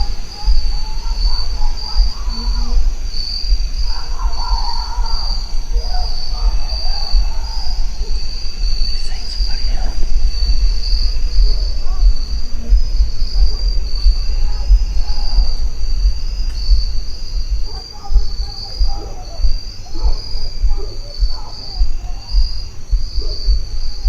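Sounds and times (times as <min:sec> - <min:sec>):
insects trilling: 0:00.0 - 0:24.0
low rumble: 0:00.0 - 0:24.0
distant person yelling: 0:03.8 - 0:08.3.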